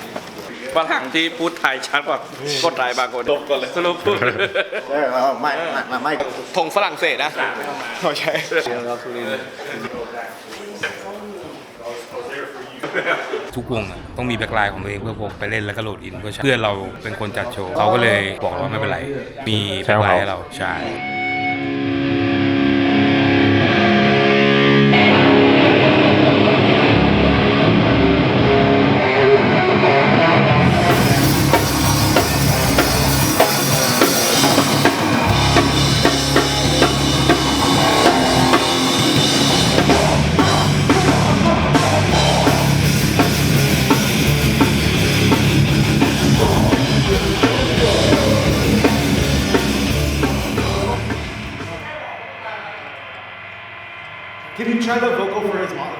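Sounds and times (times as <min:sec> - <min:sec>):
held notes: 0:21.0 - 0:51.8
rock band playing: 0:21.0 - 0:51.9.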